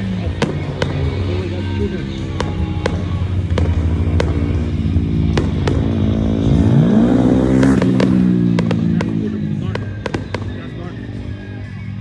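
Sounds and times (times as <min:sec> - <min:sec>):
loud motor-like drone: 0:00.0 - 0:09.9
sharp firework cracks: 0:00.0 - 0:10.9.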